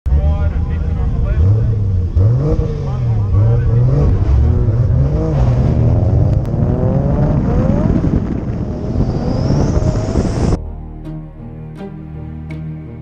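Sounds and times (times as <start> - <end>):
car engine revving hard: 0.4 - 10.6.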